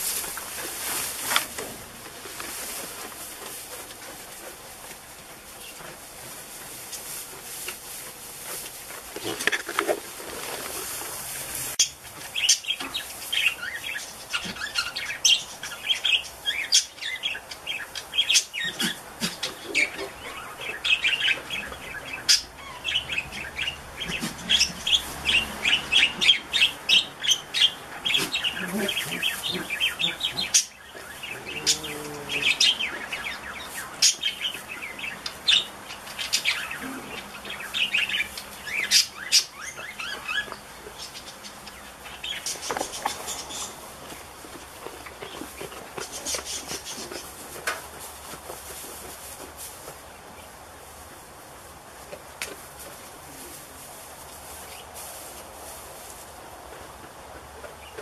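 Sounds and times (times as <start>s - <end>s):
small birds chirping: 11.8s - 47.4s.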